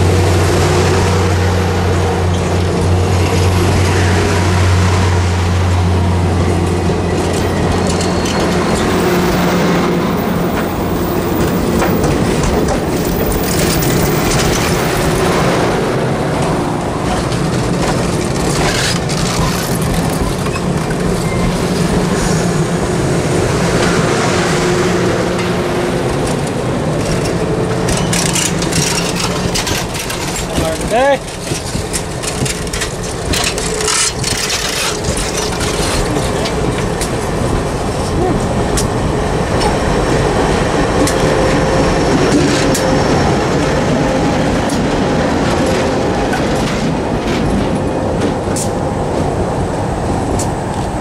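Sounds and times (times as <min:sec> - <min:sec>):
train wheels rumbling on rails: 0:00.0 - 0:51.0
clicks over rail joints: 0:06.6 - 0:22.3, 0:25.4 - 0:39.8, 0:44.6 - 0:49.4.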